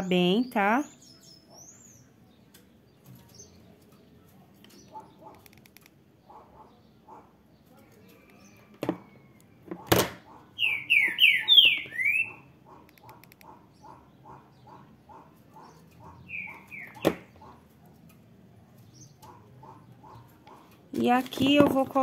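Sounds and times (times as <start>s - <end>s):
bird chirping: 0.0s - 22.0s
soft repeating bird call: 10.4s - 17.7s.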